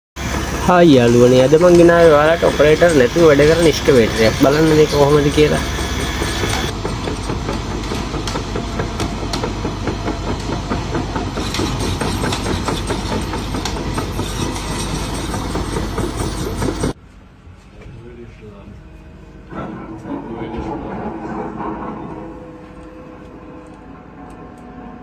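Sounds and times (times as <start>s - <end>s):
excavator diesel engine: 0.2s - 17.0s
rapid clattering: 1.4s - 17.0s.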